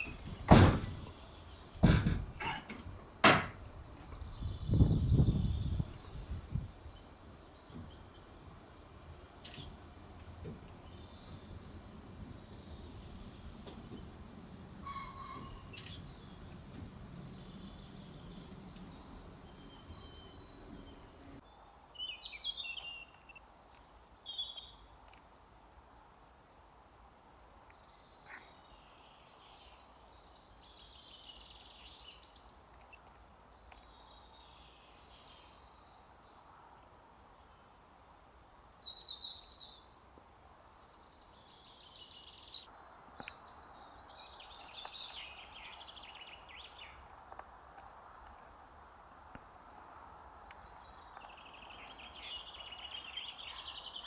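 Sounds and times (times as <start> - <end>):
songbirds singing and calling: 0.0 - 25.6, 27.1 - 47.5, 48.2 - 54.0
steady background hiss: 5.9 - 43.2.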